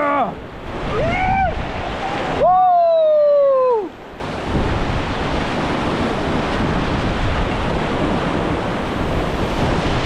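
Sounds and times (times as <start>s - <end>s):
person whooping shout: 0.0s - 1.6s, 2.4s - 3.9s
whitewater rapids rushing: 0.0s - 10.0s.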